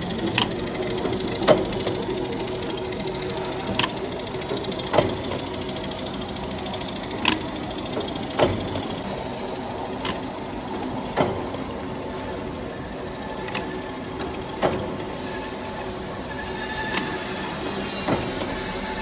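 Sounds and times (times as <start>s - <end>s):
machine mechanical hum: 0.0s - 19.0s
sharp mechanical knocks: 0.1s - 9.1s, 9.9s - 12.2s.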